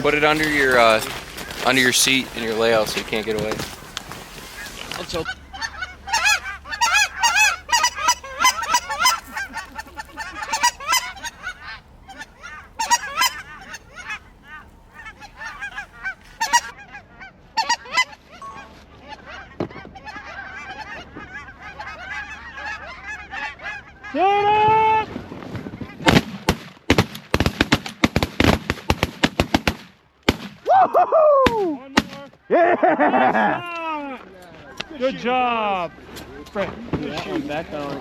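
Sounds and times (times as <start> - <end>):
geese honking: 0.0 - 24.9, 34.4 - 38.0.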